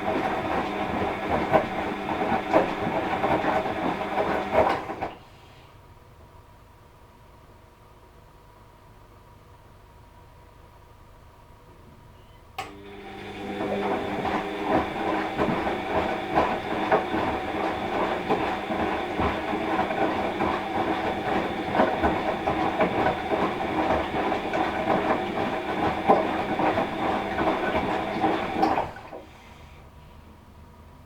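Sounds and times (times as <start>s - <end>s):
washing machine drum rattling: 13.6s - 29.1s.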